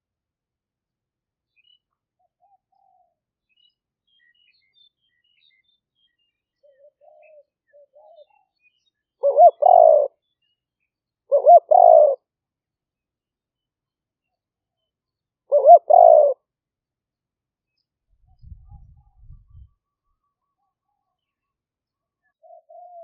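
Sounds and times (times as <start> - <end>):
small birds chirping: 1.5 - 12.2, 13.6 - 16.4
dove cooing: 6.6 - 8.3, 9.2 - 10.2, 11.3 - 12.2, 15.5 - 16.4, 22.4 - 23.0.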